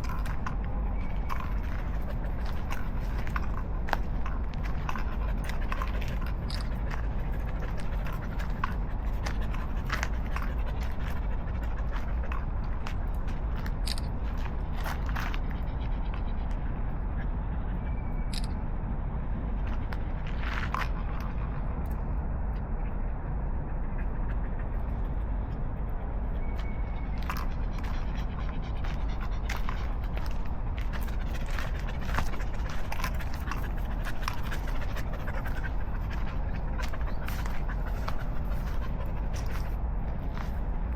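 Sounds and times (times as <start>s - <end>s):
footsteps on pavement: 0.0s - 15.7s, 26.5s - 40.9s
steady low rumble: 0.0s - 40.9s.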